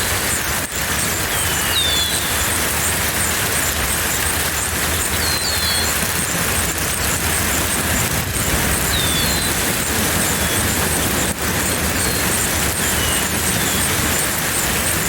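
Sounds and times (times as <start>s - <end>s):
faint rapid high ticking: 0.0s - 15.0s
loud steady rushing noise: 0.0s - 15.0s
bird whistled calls: 1.2s - 3.0s, 4.9s - 6.0s, 8.7s - 15.0s.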